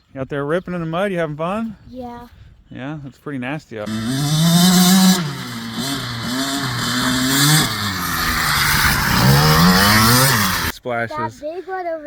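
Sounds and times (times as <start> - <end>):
dirt bike engine revving: 3.9 - 10.7.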